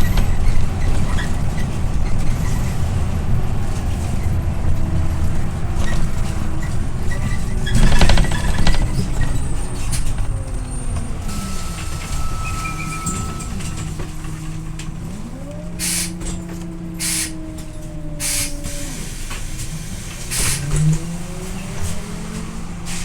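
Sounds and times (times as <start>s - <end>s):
bus diesel engine whining: 0.0s - 23.0s
air brake hisses: 15.8s - 16.4s, 17.0s - 17.5s, 18.2s - 20.9s.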